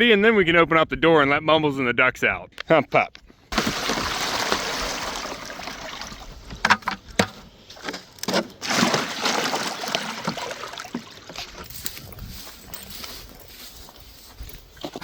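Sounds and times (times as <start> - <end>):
water pouring into a pool: 3.5 - 6.5, 8.6 - 11.4.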